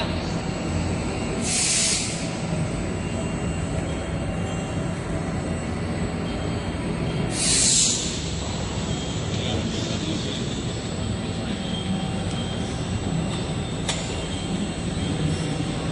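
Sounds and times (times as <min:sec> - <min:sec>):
short hissing bursts: 0:01.4 - 0:02.2, 0:07.3 - 0:08.2.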